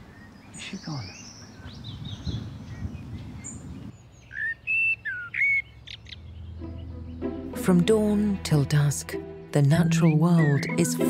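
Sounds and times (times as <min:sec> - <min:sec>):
songbird singing: 0:00.0 - 0:11.0
low outdoor rumble: 0:05.7 - 0:07.8.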